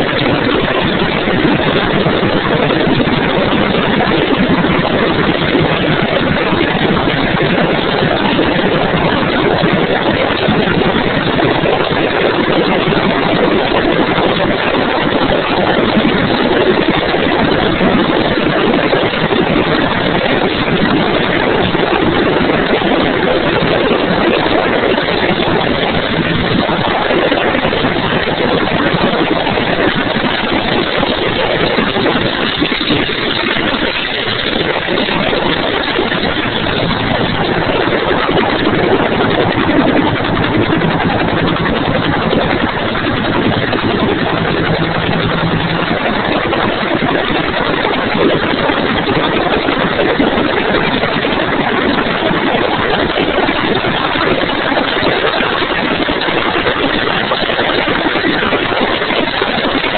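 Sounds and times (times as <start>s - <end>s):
helicopter turbine and rotor roar: 0.0s - 59.9s
faint low tones: 35.5s - 47.6s.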